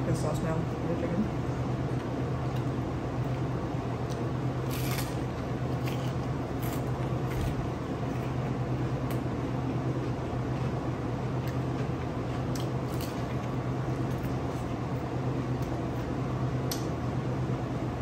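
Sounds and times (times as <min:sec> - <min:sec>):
low room hum: 0:00.0 - 0:18.0
crisp chewing crunches: 0:04.0 - 0:09.2.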